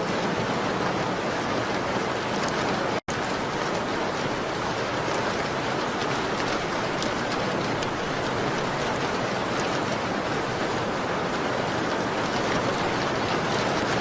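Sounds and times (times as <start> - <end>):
rain on a window: 0.0 - 14.0.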